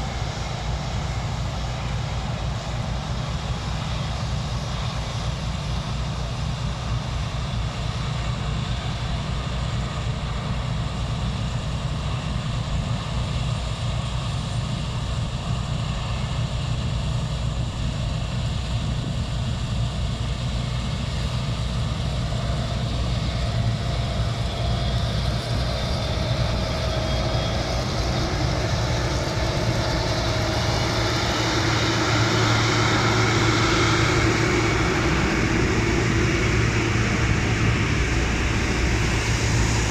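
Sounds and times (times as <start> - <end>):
diesel machinery engine hum: 11.3 - 39.9
rising whine: 21.1 - 39.9.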